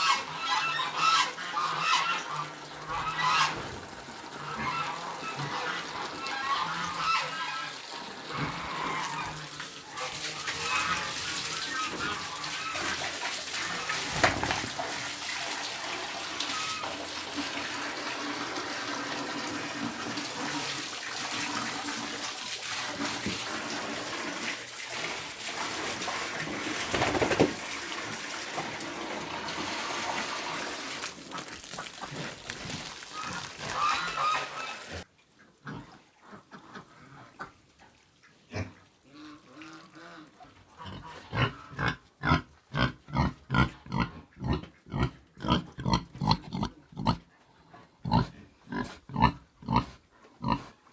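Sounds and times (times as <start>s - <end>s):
water gushing: 0.0s - 35.1s
pigs grunting: 3.0s - 14.9s, 31.3s - 36.0s, 38.5s - 50.8s.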